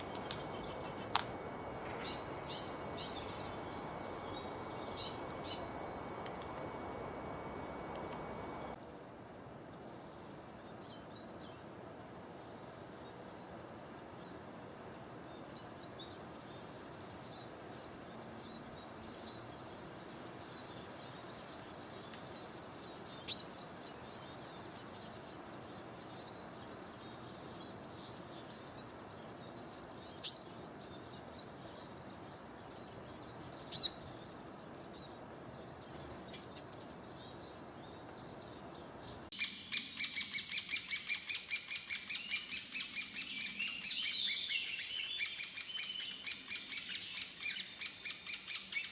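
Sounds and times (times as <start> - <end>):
background hiss: 0.0 - 8.8
bird chirps: 0.0 - 8.8, 34.9 - 48.9.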